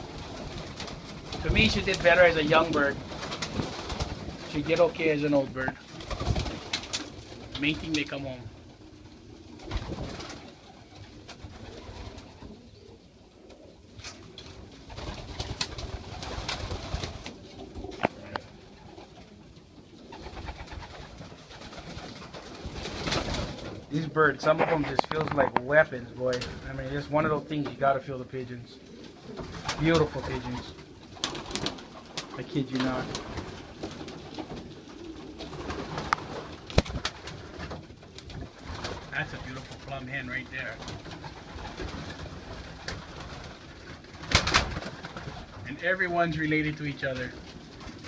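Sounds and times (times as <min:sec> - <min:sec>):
pigeons cooing: 0:00.0 - 0:45.7.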